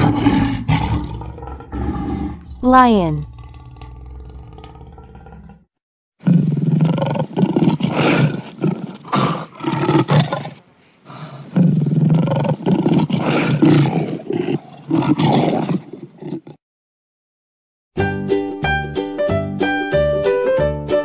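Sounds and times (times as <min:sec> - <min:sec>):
lion roaring: 0:00.0 - 0:16.6.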